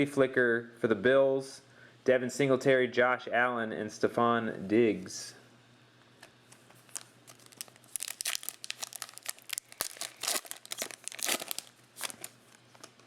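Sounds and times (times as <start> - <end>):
plastic wrapper crinkling and tearing: 6.8 - 13.0.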